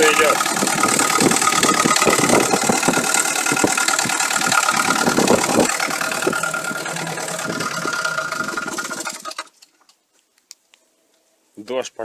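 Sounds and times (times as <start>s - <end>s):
rapid engine knock: 0.0s - 9.5s
engine idling: 0.0s - 9.6s.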